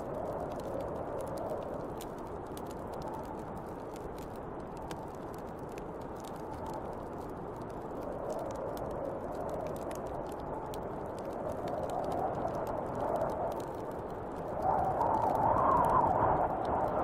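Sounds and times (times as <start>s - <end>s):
fire crackling: 0.0s - 17.0s
wind blowing in gusts: 6.0s - 17.0s.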